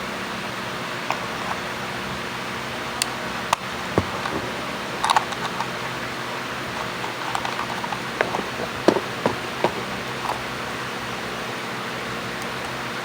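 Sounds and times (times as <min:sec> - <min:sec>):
steady background hum: 0:00.0 - 0:13.0
plastic parts clicking and tapping: 0:04.0 - 0:05.7, 0:06.7 - 0:10.5.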